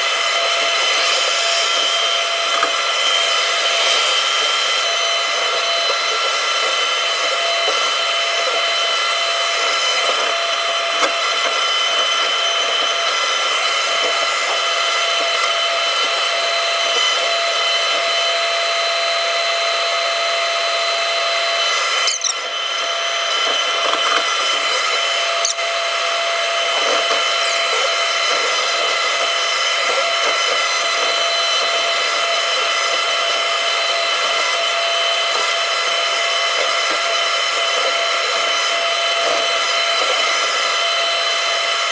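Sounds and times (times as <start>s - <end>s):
excavator engine whine: 20.0s - 29.2s.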